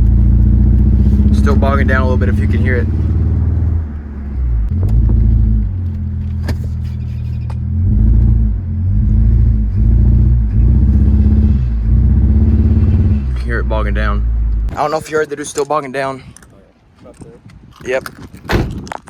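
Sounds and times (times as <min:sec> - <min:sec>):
car engine accelerating and bogging: 0:00.0 - 0:14.8.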